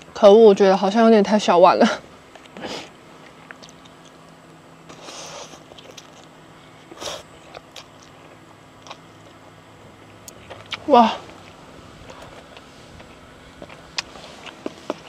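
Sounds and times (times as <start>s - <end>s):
person chewing: 2.4s - 4.3s, 4.9s - 9.4s, 10.0s - 15.0s
rustling: 10.4s - 15.0s.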